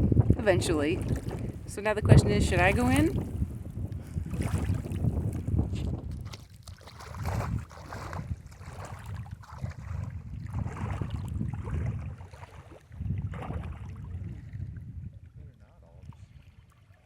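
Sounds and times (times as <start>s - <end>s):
wind buffeting microphone: 0.0s - 17.0s
river water splashing: 0.8s - 1.8s, 2.4s - 3.4s, 4.2s - 14.6s.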